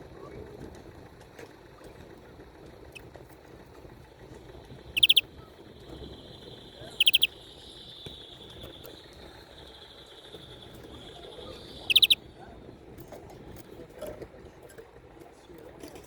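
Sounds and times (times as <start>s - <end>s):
finch singing trill: 4.9s - 5.2s, 6.0s - 12.2s.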